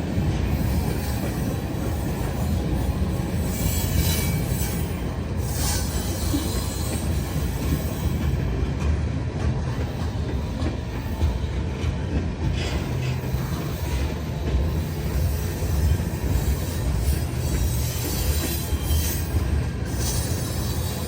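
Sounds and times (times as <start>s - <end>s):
freight train cars rumbling: 0.0s - 21.0s
high wheel squeals: 0.5s - 8.4s, 12.6s - 21.0s.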